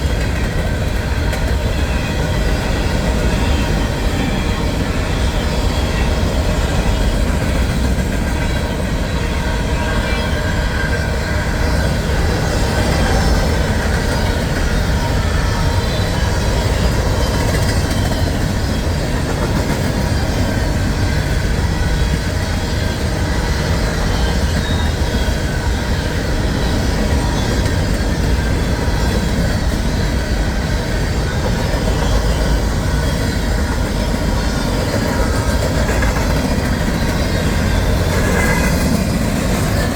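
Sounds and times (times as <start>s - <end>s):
steel wheels rumbling on rail: 0.0s - 39.9s
faint wheel squeal: 21.9s - 39.9s.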